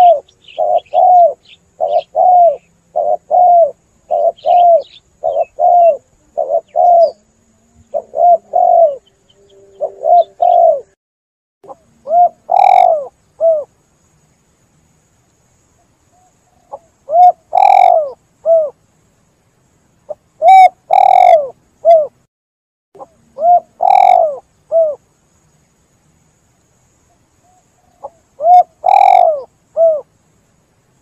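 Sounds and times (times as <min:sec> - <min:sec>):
dove cooing: 0:00.0 - 0:11.0, 0:11.7 - 0:13.7, 0:16.2 - 0:18.8, 0:20.4 - 0:22.2, 0:23.0 - 0:25.0, 0:27.5 - 0:30.1.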